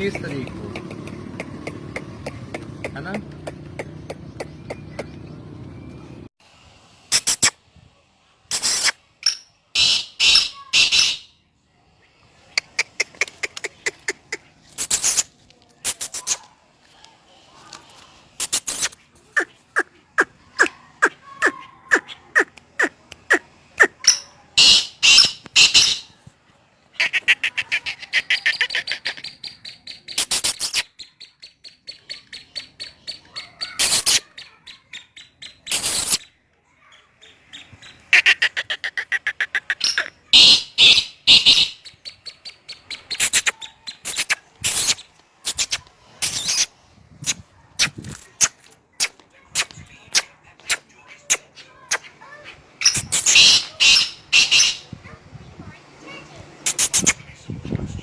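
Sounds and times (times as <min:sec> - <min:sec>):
francolin calling harsh clicking notes: 0:08.5 - 0:11.3, 0:24.0 - 0:26.1.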